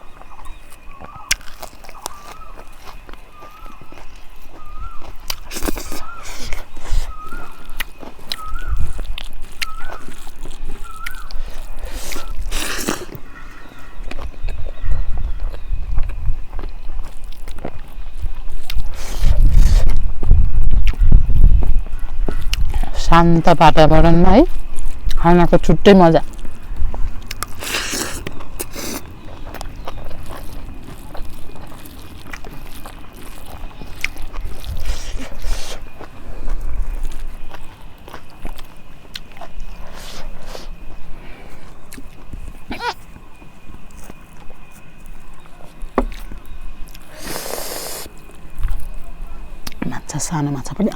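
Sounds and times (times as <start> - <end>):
person chewing food: 0.0 - 23.0, 26.2 - 49.8
wind rumble on microphone: 6.0 - 12.5, 13.1 - 27.6, 28.2 - 38.6.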